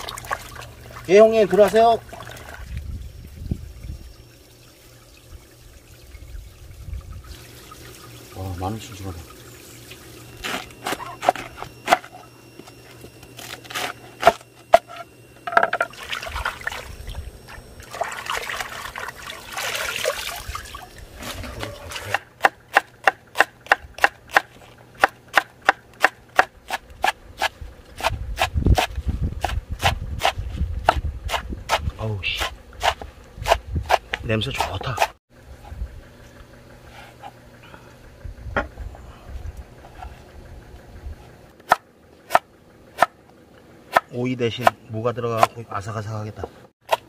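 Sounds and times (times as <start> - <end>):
water splashing in a basin: 0.0 - 2.9, 15.9 - 17.2, 17.8 - 22.2
running hose: 6.6 - 10.8
knife cutting cabbage: 22.0 - 35.1
knife chopping on wooden board: 22.1 - 35.1.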